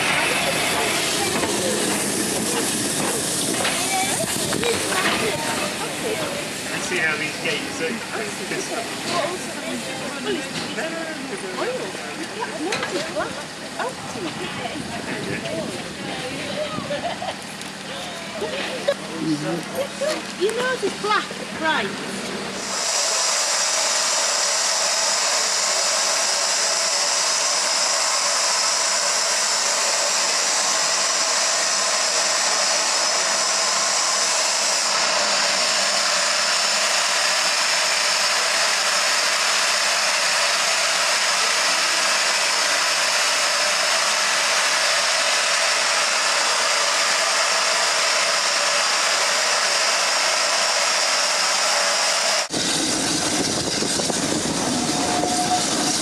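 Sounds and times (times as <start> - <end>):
steam locomotive venting steam: 0.0 - 15.8, 19.9 - 56.0.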